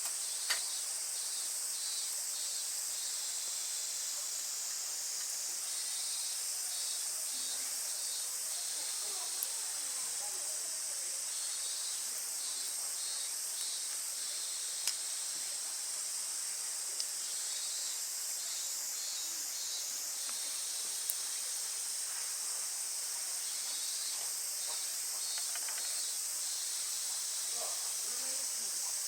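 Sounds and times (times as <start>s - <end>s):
campfire crackling pops: 0.0s - 0.8s, 8.6s - 9.8s, 13.5s - 15.4s, 17.0s - 17.4s, 20.2s - 21.4s, 23.7s - 26.1s
campfire hiss: 0.0s - 29.0s.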